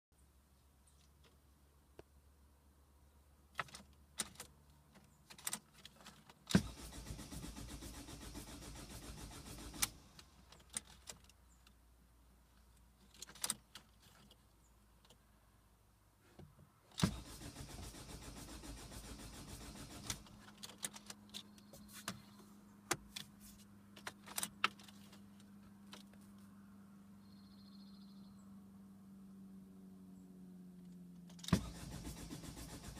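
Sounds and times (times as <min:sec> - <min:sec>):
diesel engine cranking on starter: 0:06.5 - 0:11.1, 0:17.0 - 0:21.6, 0:31.3 - 0:32.9.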